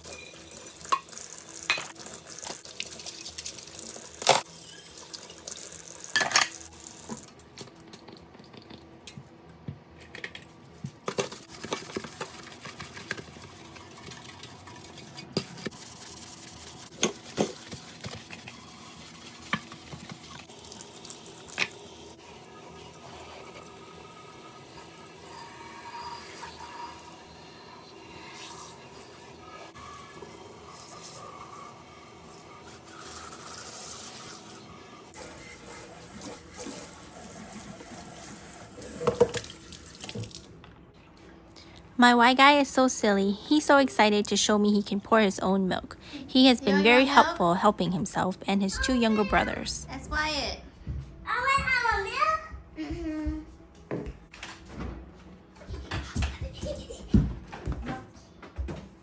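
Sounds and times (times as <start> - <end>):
tap water running: 0.0 - 8.8, 11.1 - 40.5.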